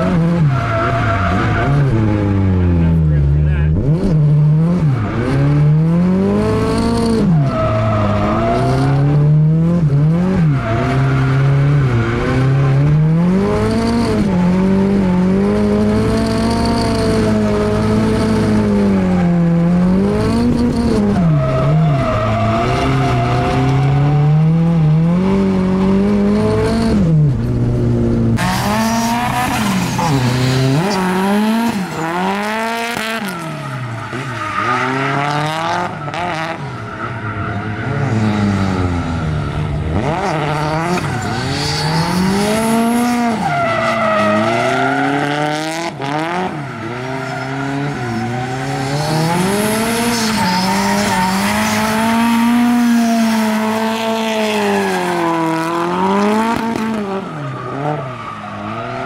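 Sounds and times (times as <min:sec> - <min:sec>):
car engine revving: 0:00.0 - 0:59.0
tyre squeal: 0:20.4 - 0:24.3, 0:28.4 - 0:55.7.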